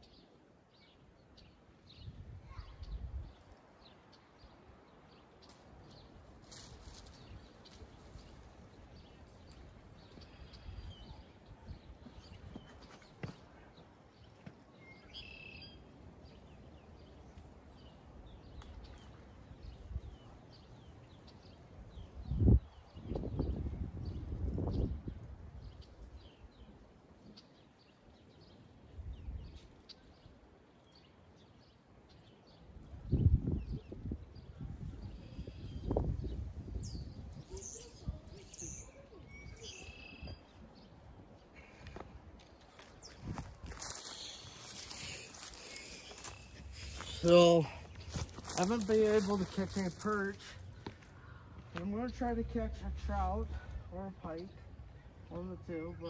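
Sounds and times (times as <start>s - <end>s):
small birds chirping: 0.0s - 56.0s
distant bird chirps: 35.0s - 56.0s.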